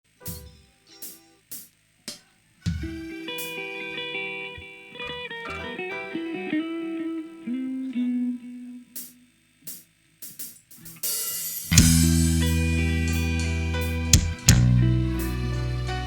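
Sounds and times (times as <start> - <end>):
electric guitar notes and chords: 2.7 - 9.2, 11.7 - 16.0.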